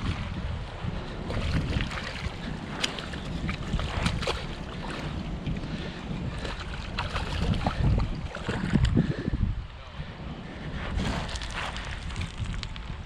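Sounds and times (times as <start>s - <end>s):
wind buffeting microphone: 0.0s - 13.0s
light ticks and splashes: 1.3s - 9.0s.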